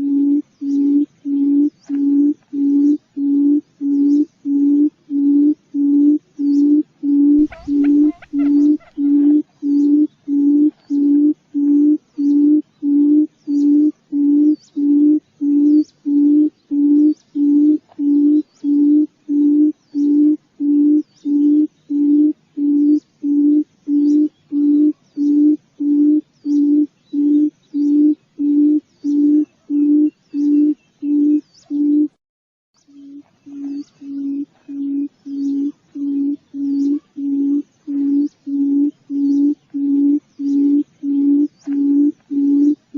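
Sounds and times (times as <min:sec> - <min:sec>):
quail lure call hooting: 0:07.1 - 0:15.0.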